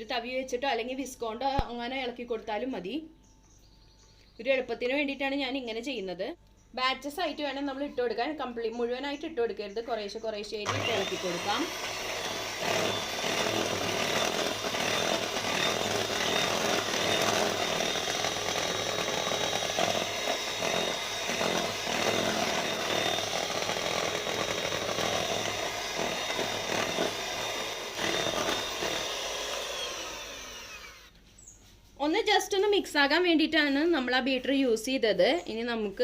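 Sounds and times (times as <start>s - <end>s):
electric hand mixer running: 10.6s - 31.1s.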